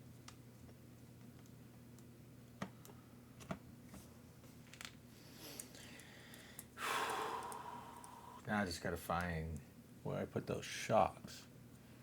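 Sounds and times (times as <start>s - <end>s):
low steady hum: 0.0s - 12.0s
small parts and tools clicking: 5.6s - 7.6s.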